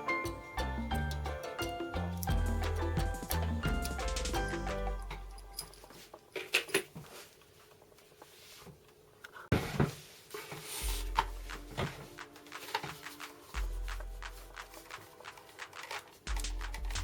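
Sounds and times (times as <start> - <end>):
background music: 0.0 - 5.9, 10.7 - 17.0.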